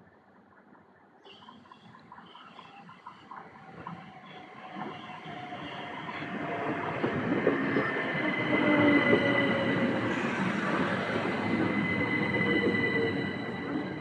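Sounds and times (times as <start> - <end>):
train wheels rumbling on rails: 1.5 - 14.0
high-pitched squeal: 8.2 - 14.0.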